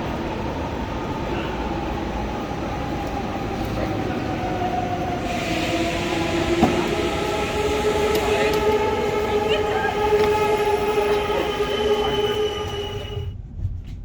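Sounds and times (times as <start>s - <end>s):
electric train running with whine: 0.0s - 13.4s
hiss: 5.2s - 7.3s.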